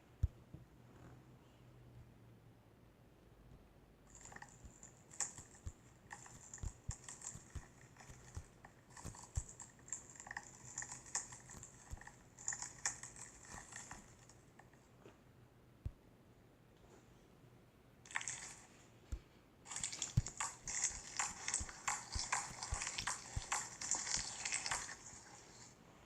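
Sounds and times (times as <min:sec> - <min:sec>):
slime crackling and popping: 0:19.7 - 0:25.3.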